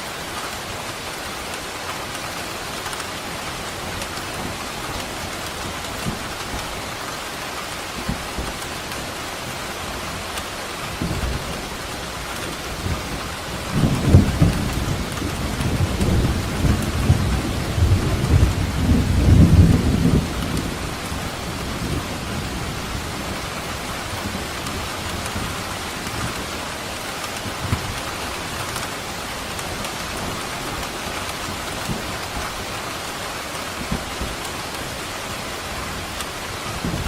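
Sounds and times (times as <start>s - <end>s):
heavy rain hissing: 0.0s - 37.0s
thunder rumbling: 10.9s - 32.7s, 35.8s - 37.0s.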